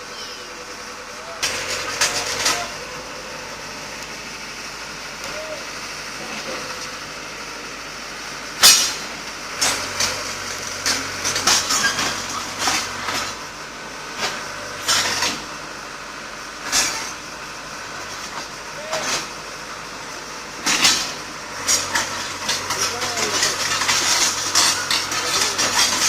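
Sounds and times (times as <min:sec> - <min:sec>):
metal wheels clanking on concrete: 0:00.0 - 0:03.8, 0:08.6 - 0:13.5, 0:14.1 - 0:15.6, 0:16.6 - 0:26.0
low engine hum: 0:00.0 - 0:26.0.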